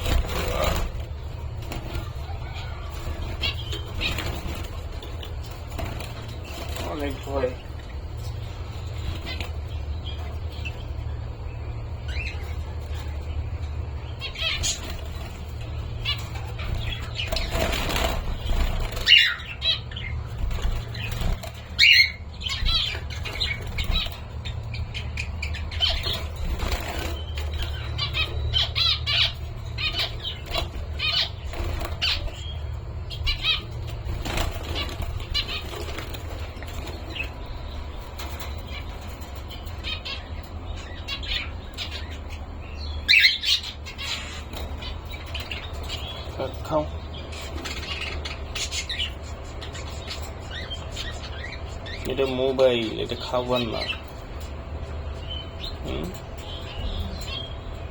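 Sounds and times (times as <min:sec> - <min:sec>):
wings flapping: 0:00.0 - 0:10.8, 0:14.2 - 0:40.3
cockatiels chirping and squawking: 0:00.0 - 0:57.9
steady low hum: 0:00.0 - 0:57.9.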